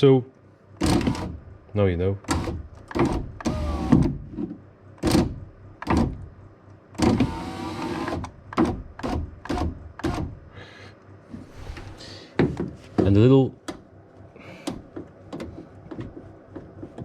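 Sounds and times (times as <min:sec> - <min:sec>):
power window motor whine: 0:02.3 - 0:04.2, 0:07.0 - 0:10.4
sharp clicks and knocks: 0:14.6 - 0:17.0.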